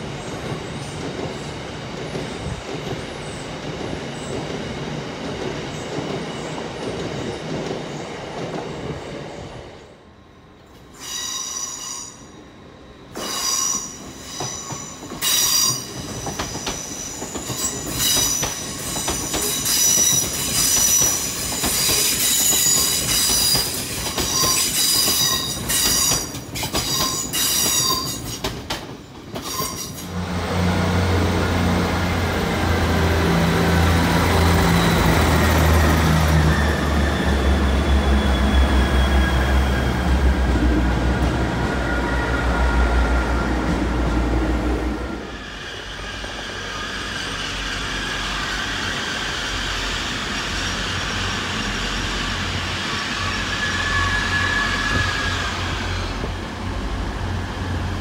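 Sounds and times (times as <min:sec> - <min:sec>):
train low drone: 0:00.0 - 0:58.0
train wheels squealing: 0:10.8 - 0:28.6, 0:29.3 - 0:30.1, 0:32.2 - 0:40.6, 0:41.2 - 0:43.8, 0:45.1 - 0:56.4.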